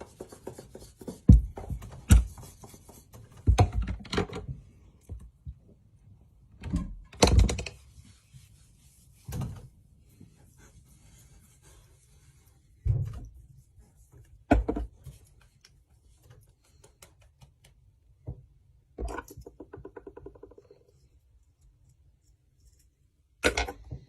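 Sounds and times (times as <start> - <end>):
irregular knocks and thumps: 1.0 - 5.6, 18.2 - 20.9.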